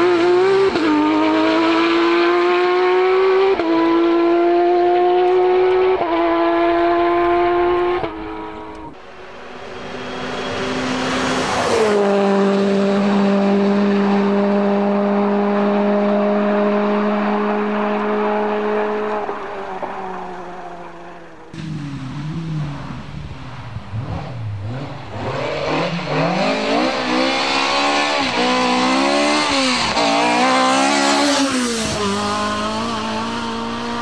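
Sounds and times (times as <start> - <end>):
rally car engine high revs: 0.0 - 20.3, 24.0 - 34.0
car passing by: 0.0 - 34.0.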